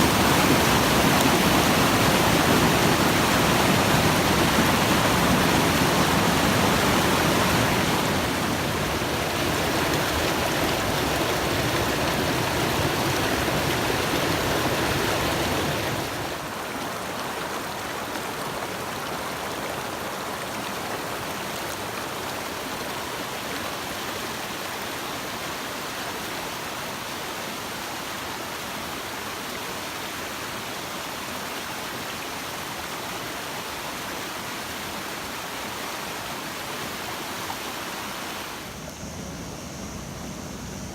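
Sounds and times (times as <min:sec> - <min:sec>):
stream rushing over rocks: 0:00.0 - 0:40.0.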